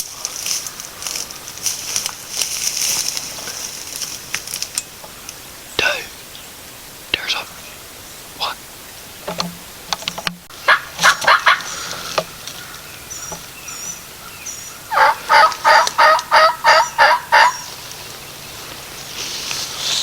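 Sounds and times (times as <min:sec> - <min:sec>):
turkey yelping: 0:10.6 - 0:17.8
faint songbird chirps: 0:10.6 - 0:20.0.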